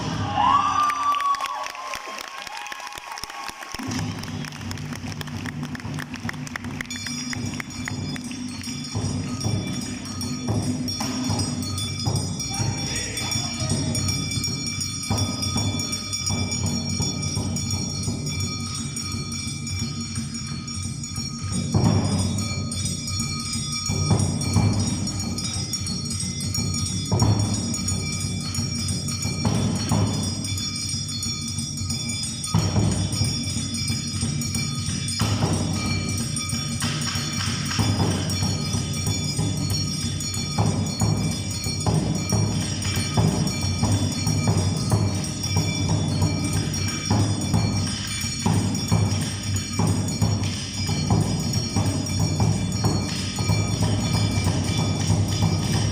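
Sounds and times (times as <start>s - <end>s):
metallic percussion ringing: 0.0s - 1.9s, 3.8s - 55.9s
heavy drum strikes: 31.7s - 55.9s.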